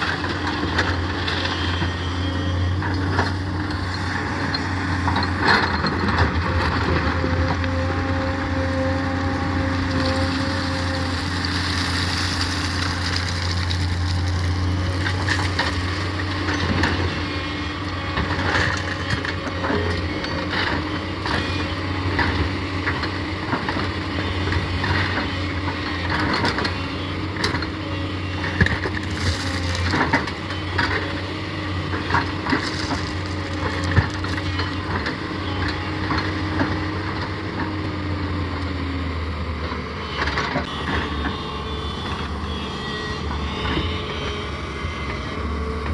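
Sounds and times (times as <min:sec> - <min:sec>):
excavator diesel engine running: 0:00.0 - 0:45.9
earth and stones scraping and knocking: 0:09.9 - 0:16.9, 0:28.7 - 0:30.3, 0:32.0 - 0:35.0.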